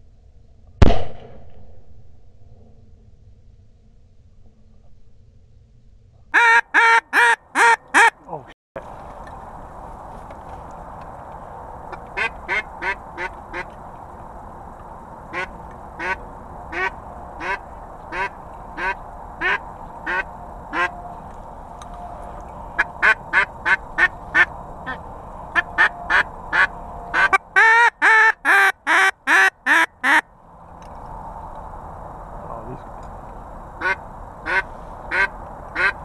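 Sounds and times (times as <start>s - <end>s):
duck quacking: 6.4s - 8.2s, 11.9s - 13.7s, 15.3s - 20.9s, 22.8s - 25.0s, 25.6s - 30.2s, 33.8s - 36.0s.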